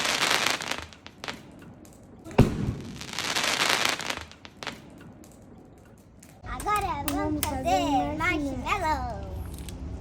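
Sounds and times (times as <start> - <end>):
bonfire crackling and popping: 0.0 - 6.4.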